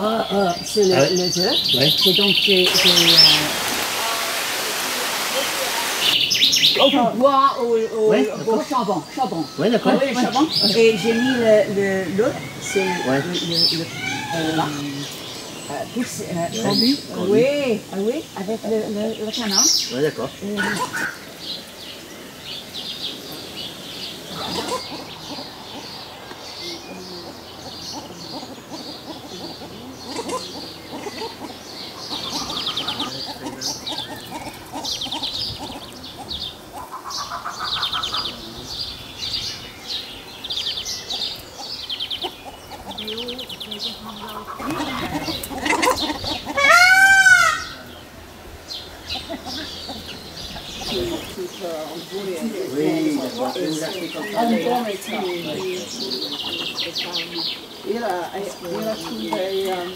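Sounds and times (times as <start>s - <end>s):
birds trilling chirps: 0.0s - 59.9s
bird rising-and-falling call: 42.5s - 48.0s.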